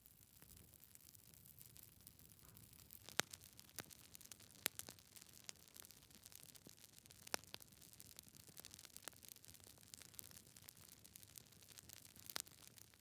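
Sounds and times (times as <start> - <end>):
sharp pops of burning wood: 2.7 - 13.0.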